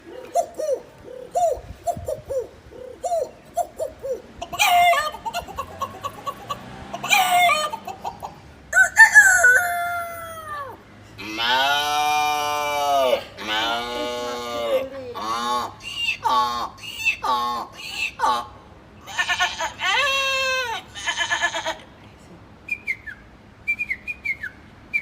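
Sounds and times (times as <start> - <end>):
man imitating chicken clucks: 0.0 - 18.6
man imitating rooster crow: 8.8 - 10.8.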